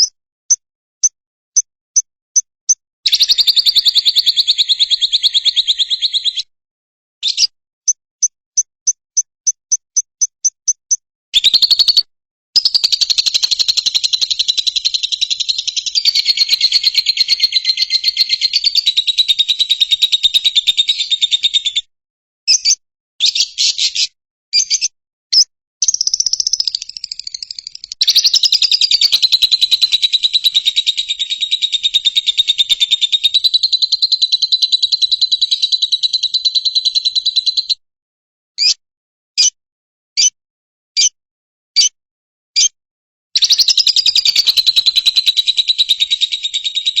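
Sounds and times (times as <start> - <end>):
bird high-pitched chattering trill: 2.7 - 6.5, 7.2 - 7.5, 11.4 - 21.9, 22.5 - 37.8, 38.6 - 38.8, 43.4 - 47.0.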